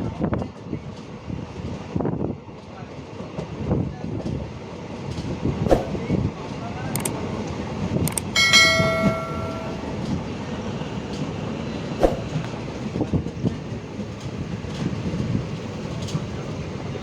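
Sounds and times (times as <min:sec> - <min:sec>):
train rumbling on track: 0:08.0 - 0:17.0.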